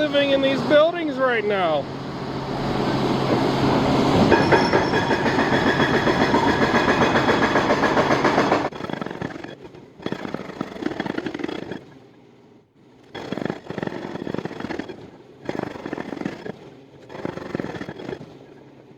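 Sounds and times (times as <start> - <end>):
hydraulic hammer pounding: 0.0 - 11.8.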